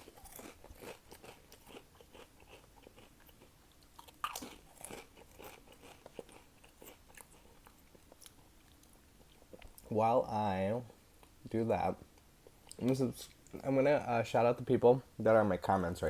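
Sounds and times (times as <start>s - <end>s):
chewing crunchy chips: 0.0s - 9.9s.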